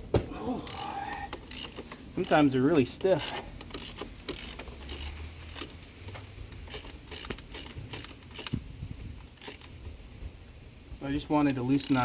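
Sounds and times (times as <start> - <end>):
socket ratchet clicking: 0.7 - 8.6, 9.3 - 9.8.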